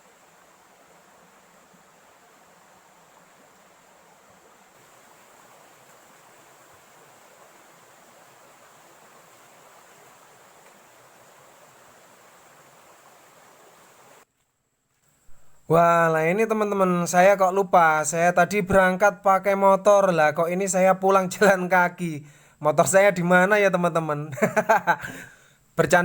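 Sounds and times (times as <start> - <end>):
faint steady rushing noise: 0.0 - 26.0.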